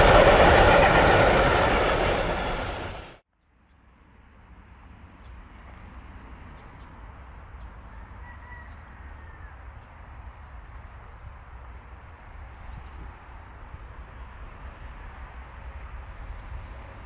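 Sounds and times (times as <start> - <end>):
low outdoor rumble: 0.0 - 3.2.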